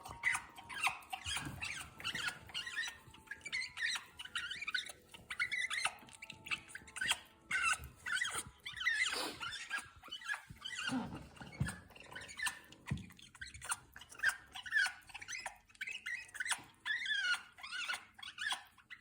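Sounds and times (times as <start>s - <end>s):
parrot chattering: 0.0s - 11.2s.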